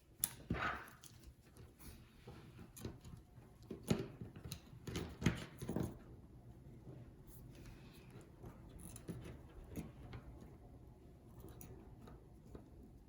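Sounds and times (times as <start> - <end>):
small tools clicking and tapping: 0.2 - 1.7, 2.6 - 6.0.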